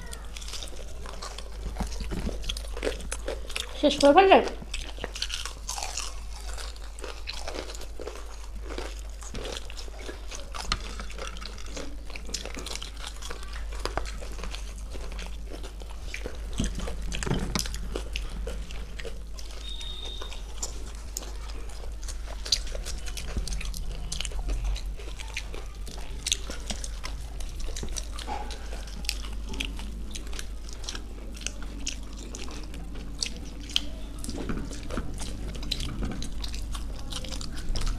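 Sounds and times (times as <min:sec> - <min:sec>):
biting and chewing crispy food: 0:00.0 - 0:37.9.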